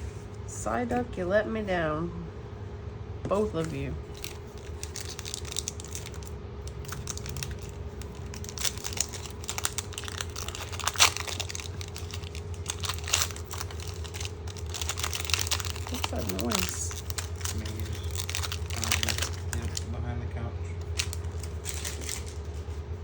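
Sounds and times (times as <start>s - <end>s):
steady low hum: 0.0s - 23.0s
foil wrapper crinkling and tearing: 3.6s - 19.9s, 20.8s - 22.8s.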